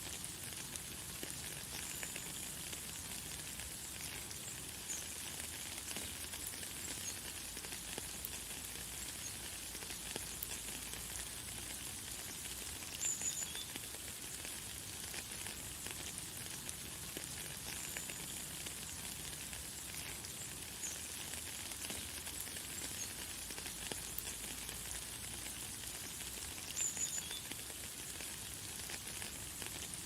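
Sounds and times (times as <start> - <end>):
light rain hissing: 0.0 - 30.0
faint high bird chirps: 13.0 - 13.7, 26.7 - 27.5.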